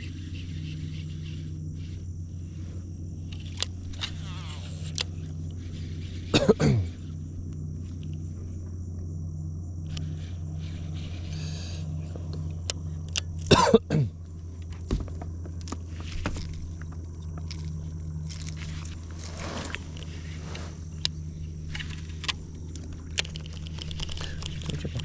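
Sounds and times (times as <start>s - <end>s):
constant low hum: 0.0s - 25.0s
night insects chirring: 0.0s - 25.0s
person coughing: 6.4s - 6.9s, 13.5s - 14.1s
scattered clicks: 18.4s - 25.0s.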